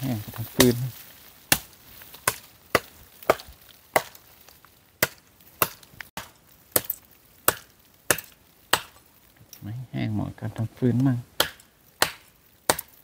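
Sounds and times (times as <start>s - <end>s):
blade chopping dry wood: 0.4s - 9.1s, 11.4s - 13.0s.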